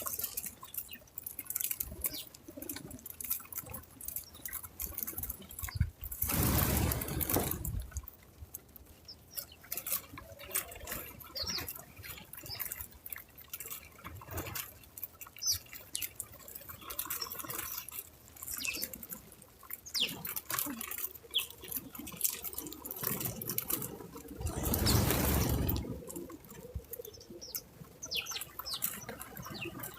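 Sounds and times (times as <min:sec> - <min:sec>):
small birds chirping: 0:00.0 - 0:07.5, 0:08.9 - 0:13.0, 0:15.2 - 0:29.9
loud rustle: 0:06.1 - 0:08.0, 0:24.4 - 0:26.3.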